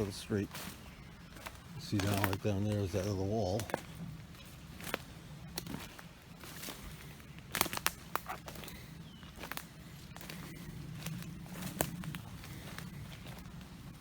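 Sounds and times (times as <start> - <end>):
twigs snapping and cracking: 0.0 - 13.7
footsteps crunching through undergrowth: 0.0 - 14.0.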